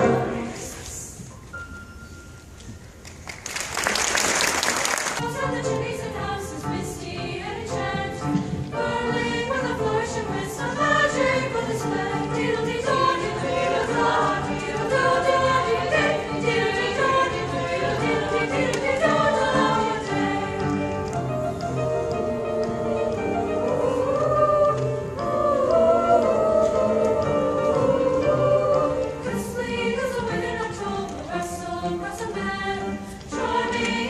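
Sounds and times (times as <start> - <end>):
choir singing in harmony: 0.0 - 1.3, 5.1 - 34.0
hissing clapping-like noise: 3.0 - 5.2.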